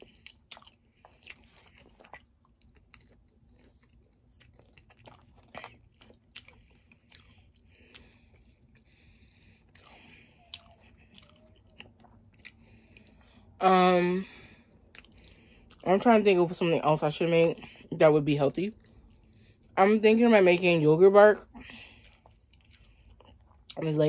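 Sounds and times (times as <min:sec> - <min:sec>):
person chewing with mouth clicks: 0:00.0 - 0:13.5, 0:14.8 - 0:15.8, 0:21.6 - 0:23.8.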